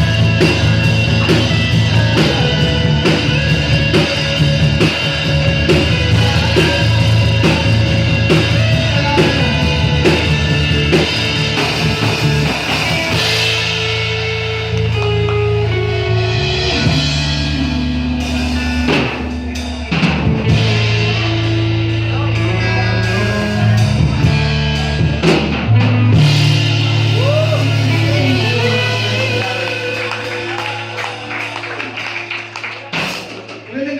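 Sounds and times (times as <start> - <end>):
person singing: 0.0 - 5.0, 5.7 - 11.2, 27.1 - 31.3
live rock band playing: 0.0 - 33.7.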